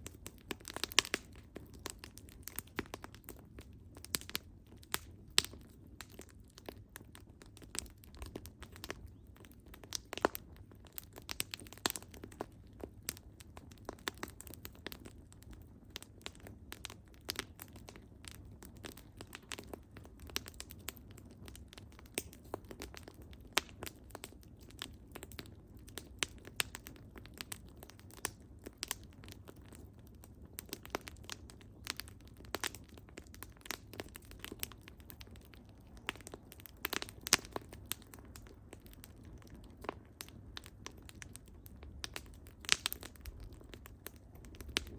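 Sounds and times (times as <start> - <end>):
firewood crackling and popping: 0.0 - 44.9.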